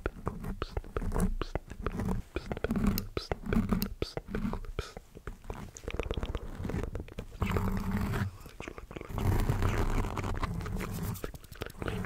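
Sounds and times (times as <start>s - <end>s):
breathy whispering: 0.0s - 12.0s
wet mouth clicks and smacks: 2.4s - 6.6s, 11.2s - 12.0s.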